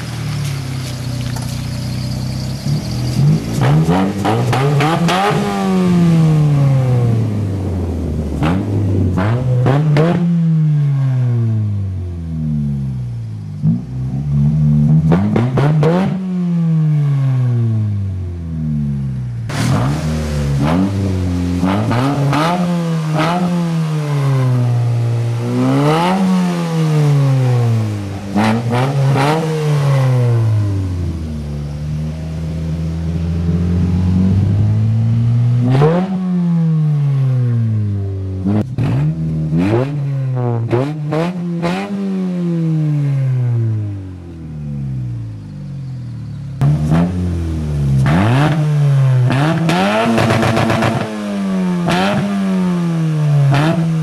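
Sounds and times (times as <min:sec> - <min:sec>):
exhaust cracks: 0:00.0 - 0:10.3, 0:19.2 - 0:36.2
car engine revving: 0:00.0 - 0:54.0.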